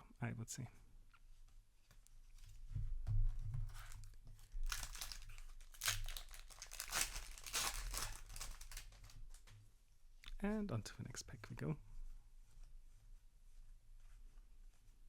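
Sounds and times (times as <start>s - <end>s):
foil wrapper crinkling and tearing: 4.5s - 9.5s.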